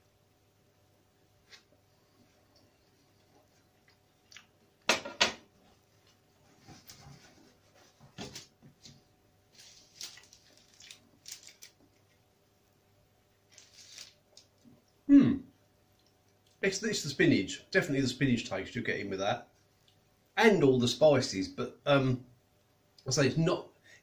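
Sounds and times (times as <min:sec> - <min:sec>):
person chewing pastry: 0:02.4 - 0:04.8
plastic packaging crinkling: 0:09.5 - 0:12.2, 0:13.4 - 0:14.7.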